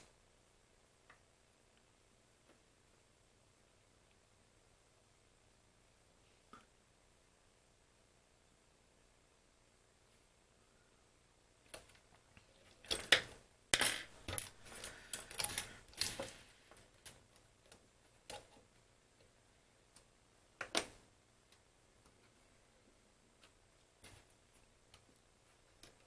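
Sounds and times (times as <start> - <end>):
small hard parts clicking: 12.7 - 18.6.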